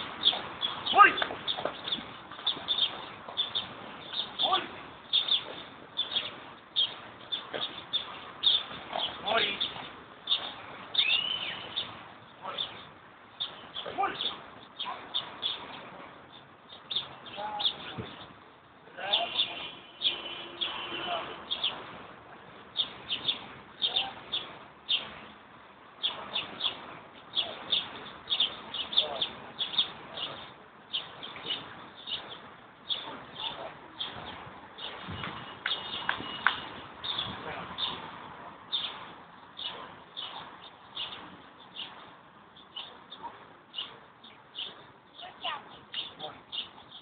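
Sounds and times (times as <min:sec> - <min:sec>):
small birds chirping: 0:00.0 - 0:47.0.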